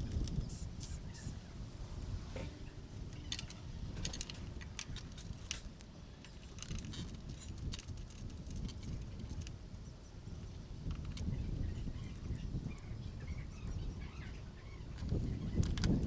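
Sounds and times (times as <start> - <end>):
small metal parts clinking: 2.8 - 9.7.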